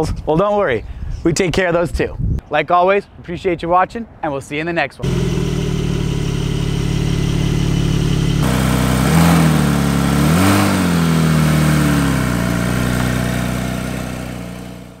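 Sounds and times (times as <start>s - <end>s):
car engine revving: 5.0s - 15.0s.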